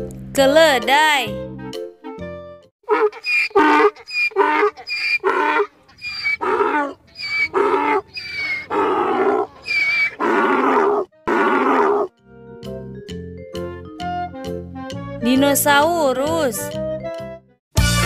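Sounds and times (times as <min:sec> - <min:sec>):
donkey braying: 0:02.8 - 0:12.1.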